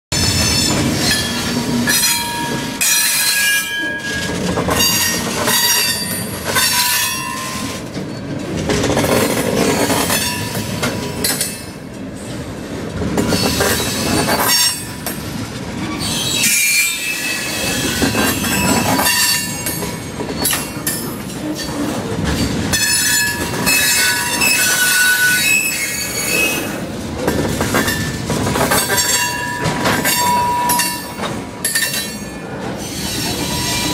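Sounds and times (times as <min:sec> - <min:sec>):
rumble and clatter of train cars: 0:00.1 - 0:33.9
train wheels squealing: 0:00.2 - 0:07.8, 0:13.3 - 0:15.0, 0:15.9 - 0:26.8, 0:28.8 - 0:33.9.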